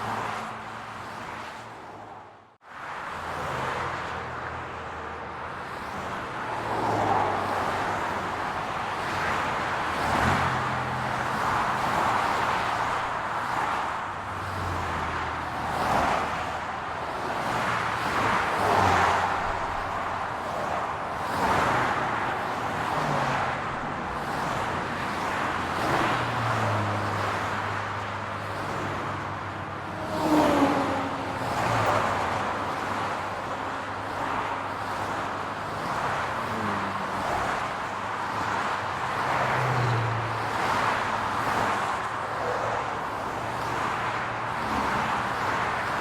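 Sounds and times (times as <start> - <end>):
car traffic passing: 0.0 - 46.0
loud vehicle passing: 21.3 - 27.7, 28.5 - 34.4, 36.0 - 37.9, 38.5 - 46.0.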